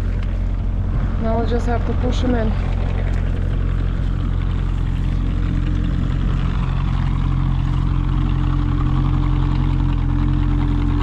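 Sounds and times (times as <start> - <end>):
post driver engine running: 0.0 - 11.0.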